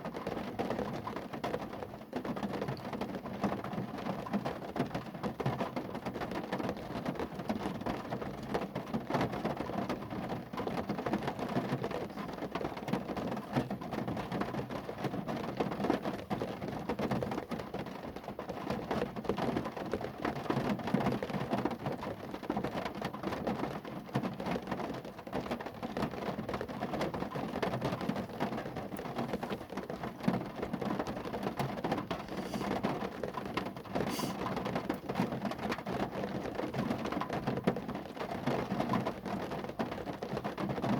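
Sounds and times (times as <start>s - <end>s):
rain pattering on a car: 0.0s - 40.9s.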